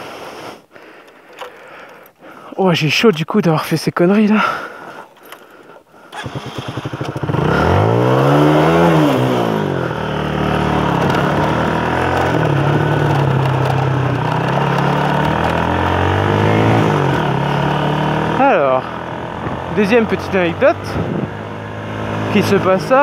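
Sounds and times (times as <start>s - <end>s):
motorcycle engine running: 6.2s - 23.0s.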